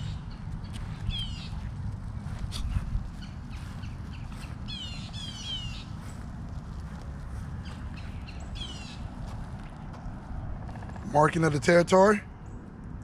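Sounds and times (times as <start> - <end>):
low steady rumble: 0.0 - 13.0
bird squawks: 3.2 - 5.9.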